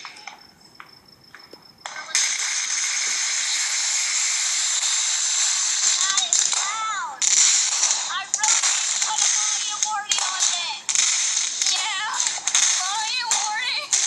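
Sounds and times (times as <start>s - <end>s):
firework spraying sparks hiss: 2.3s - 6.4s, 10.9s - 12.7s.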